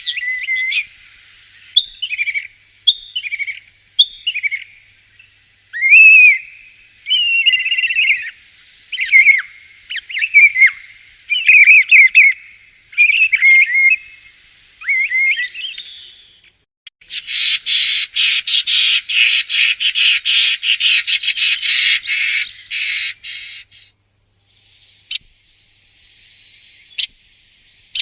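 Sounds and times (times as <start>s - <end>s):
starling singing: 8.9s - 12.4s.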